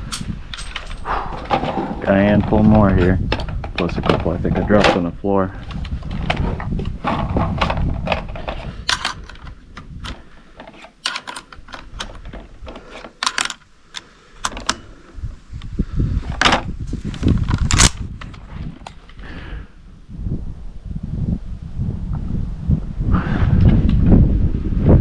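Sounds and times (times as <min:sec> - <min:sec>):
cartridges and rifle parts clicking: 0:08.8 - 0:14.9, 0:17.5 - 0:18.0.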